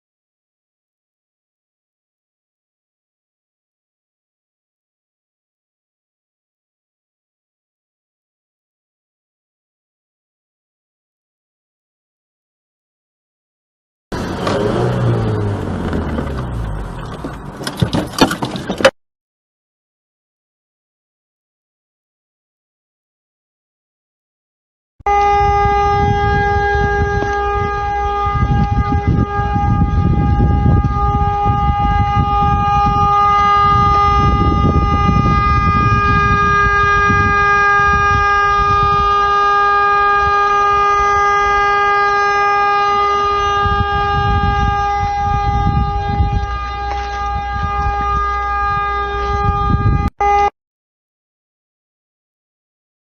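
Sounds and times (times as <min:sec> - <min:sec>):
engine and road rumble: 0:14.1 - 0:19.0, 0:25.1 - 0:50.5
vehicle horn held down: 0:25.1 - 0:50.5.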